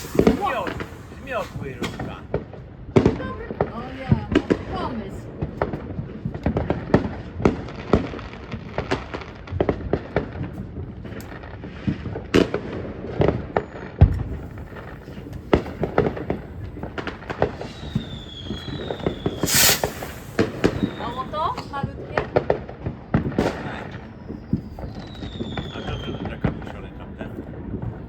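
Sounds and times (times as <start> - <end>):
falling firework whistle: 0.0 - 2.3, 14.4 - 21.8, 23.4 - 26.6
fireworks bangs and crackles: 0.0 - 28.0.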